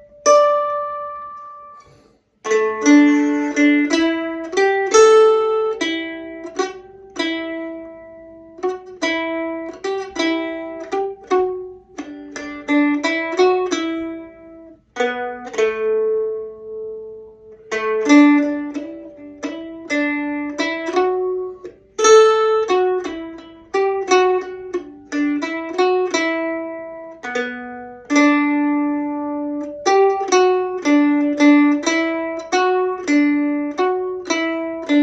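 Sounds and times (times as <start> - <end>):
plucked string instrument melody: 0.0 - 35.0.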